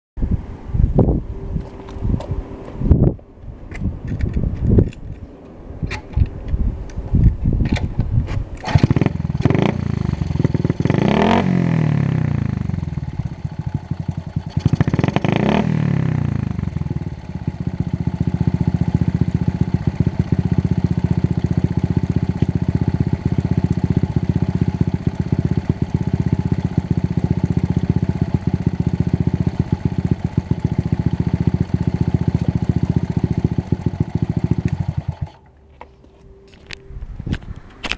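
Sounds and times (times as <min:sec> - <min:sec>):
minibike engine revving and idling: 0:05.8 - 0:35.6.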